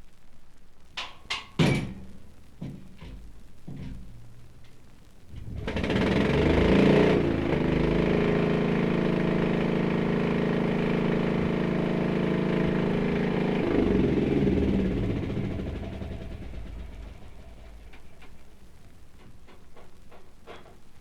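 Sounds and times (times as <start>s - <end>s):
tank engine starting and running: 5.3s - 18.5s.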